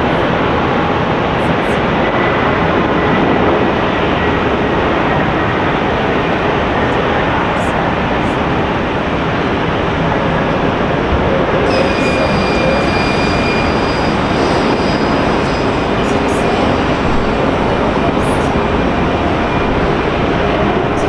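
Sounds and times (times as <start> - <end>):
jet airliner engines running: 0.0 - 21.0
thin high whine: 11.5 - 21.0.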